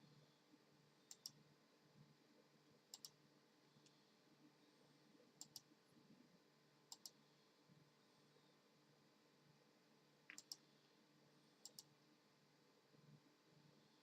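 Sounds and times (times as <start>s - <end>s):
faint sharp clicks: 1.1s - 1.4s, 2.9s - 3.2s, 5.4s - 5.7s, 6.9s - 7.2s, 10.3s - 10.7s, 11.6s - 11.9s.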